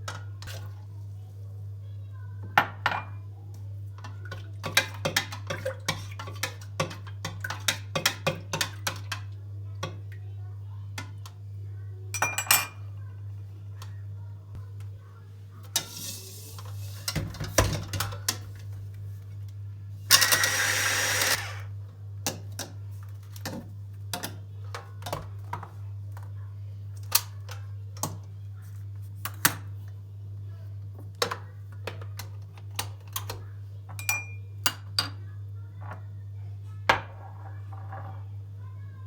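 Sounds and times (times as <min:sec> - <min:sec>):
utensils clicking and knocking: 0:20.1 - 0:21.6.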